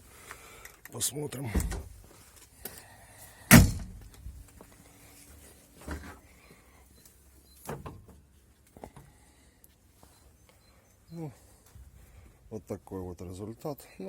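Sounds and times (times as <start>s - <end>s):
car door slamming: 3.5s - 4.0s.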